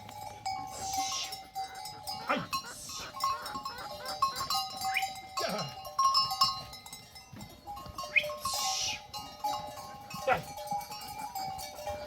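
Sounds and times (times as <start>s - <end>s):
livestock bleating: 0.7s - 1.4s, 8.5s - 9.1s.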